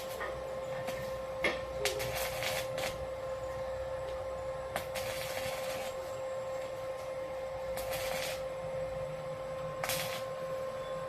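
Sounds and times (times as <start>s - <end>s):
electrical hum: 0.0s - 11.0s
bursts of hissing noise: 0.8s - 3.1s, 7.6s - 8.5s, 9.8s - 10.6s.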